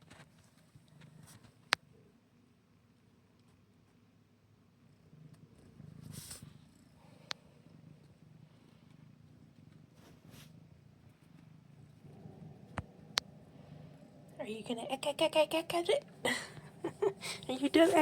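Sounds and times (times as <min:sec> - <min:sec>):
kitten purring: 0:03.2 - 0:18.0
soft rustles: 0:05.4 - 0:14.0, 0:16.0 - 0:18.0.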